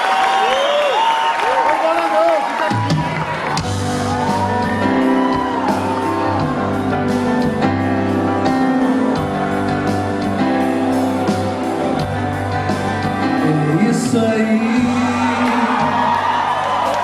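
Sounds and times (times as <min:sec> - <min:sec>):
bass: 0:02.9 - 0:17.0
guitar chords: 0:03.6 - 0:17.0.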